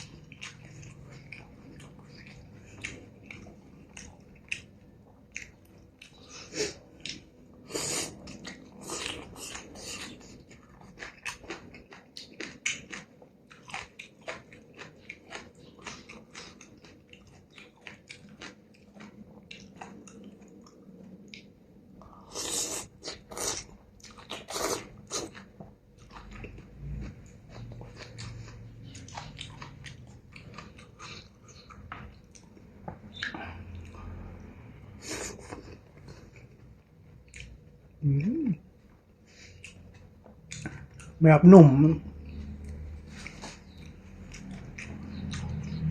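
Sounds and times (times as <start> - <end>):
person chewing wet mouth smacks: 22.3 - 34.0, 37.3 - 38.5, 42.3 - 45.9.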